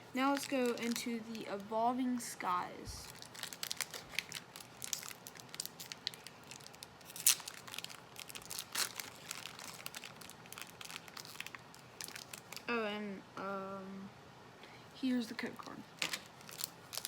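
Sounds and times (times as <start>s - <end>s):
foil wrapper crinkling and tearing: 0.1s - 1.7s, 3.0s - 12.7s, 16.0s - 17.0s.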